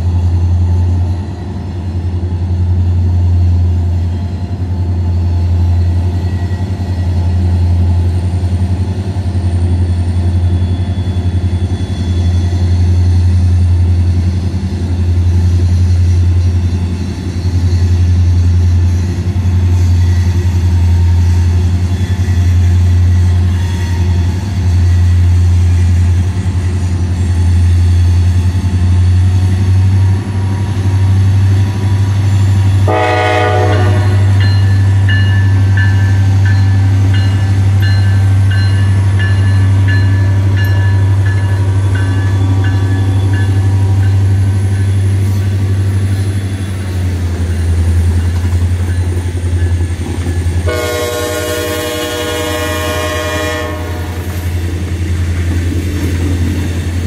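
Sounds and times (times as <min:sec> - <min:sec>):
diesel locomotives rumbling: 0:00.0 - 0:57.0
train horn blast: 0:32.8 - 0:34.4, 0:50.6 - 0:54.4.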